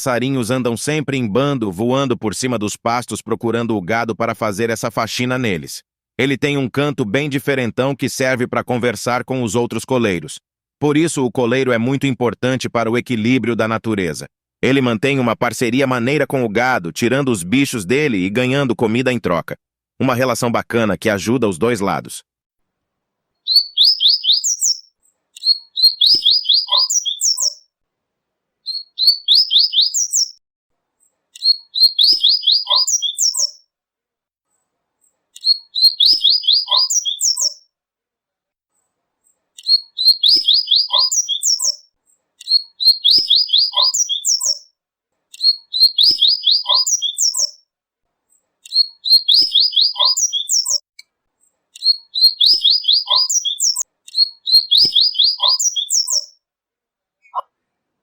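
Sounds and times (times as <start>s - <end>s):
seedeater bird singing: 23.4s - 27.7s, 28.6s - 30.4s, 31.3s - 33.6s, 35.4s - 37.7s, 39.2s - 44.7s, 45.3s - 47.6s, 48.6s - 50.9s, 51.7s - 56.4s.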